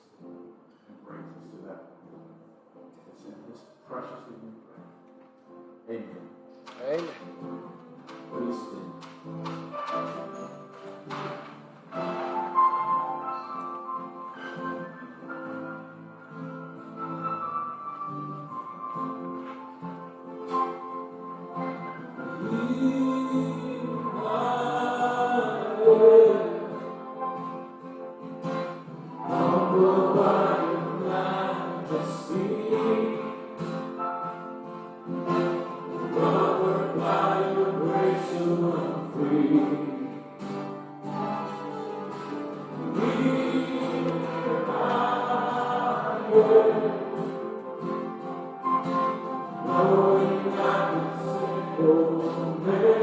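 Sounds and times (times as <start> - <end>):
keyboard accompaniment: 0.0 - 53.0
congregation singing a hymn: 8.1 - 13.7, 21.6 - 28.0, 28.7 - 53.0.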